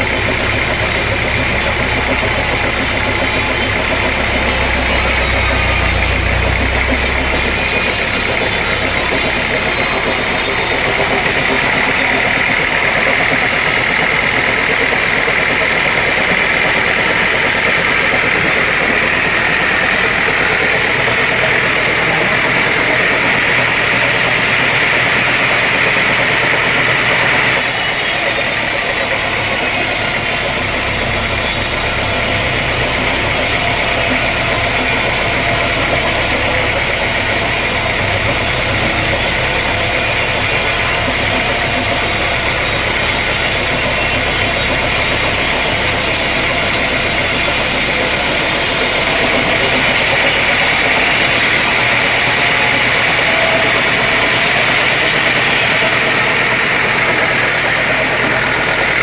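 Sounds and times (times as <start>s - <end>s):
low engine hum: 0.0s - 27.6s
sawmill saw whining: 0.0s - 59.0s.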